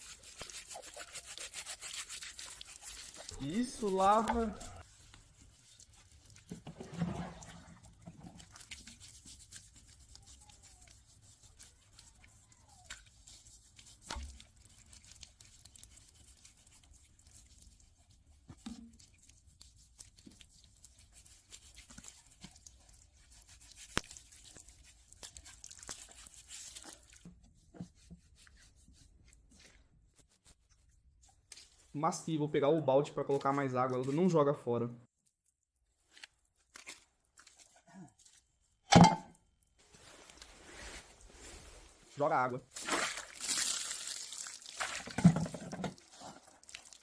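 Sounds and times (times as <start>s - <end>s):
scrubbing on animal hide: 0.0s - 32.0s, 39.8s - 45.1s.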